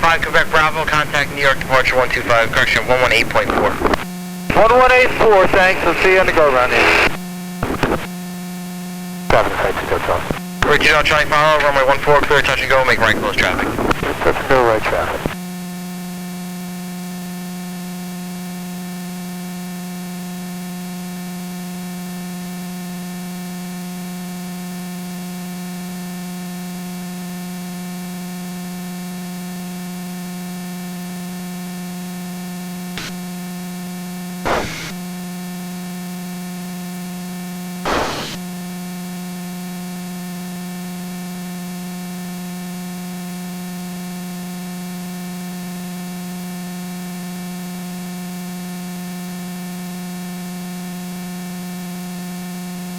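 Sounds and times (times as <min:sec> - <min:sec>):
static hiss: 0:00.0 - 0:08.2, 0:09.2 - 0:15.4, 0:32.9 - 0:33.3, 0:34.4 - 0:35.0, 0:37.7 - 0:38.5
static crackles: 0:00.0 - 0:15.4, 0:32.9 - 0:33.4, 0:34.4 - 0:35.1, 0:37.7 - 0:38.6.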